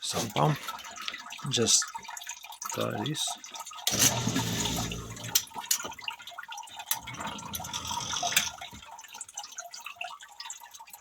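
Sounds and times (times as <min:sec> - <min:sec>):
sump pump churning water: 0:03.6 - 0:09.2.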